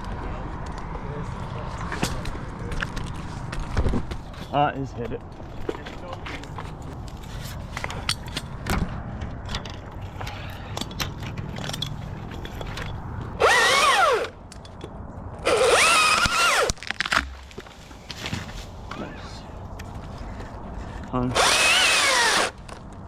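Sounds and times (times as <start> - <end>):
chainsaw revving: 13.4 - 14.3, 15.4 - 16.7, 21.3 - 22.6.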